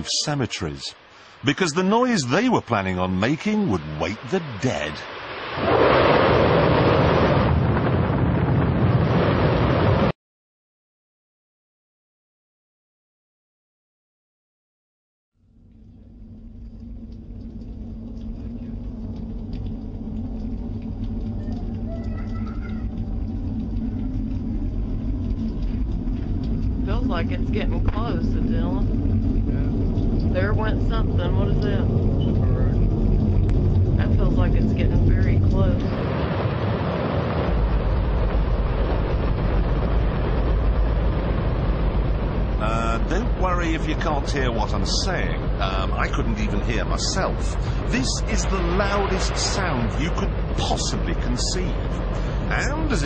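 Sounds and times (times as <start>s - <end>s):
rocket engine deep rumble: 1.0s - 10.1s, 15.4s - 53.0s.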